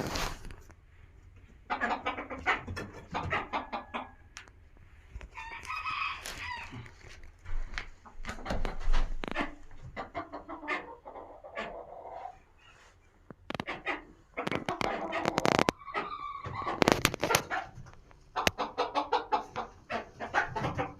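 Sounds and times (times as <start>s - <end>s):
chickens clucking: 0.1s - 20.9s
rooster crowing: 5.4s - 6.9s.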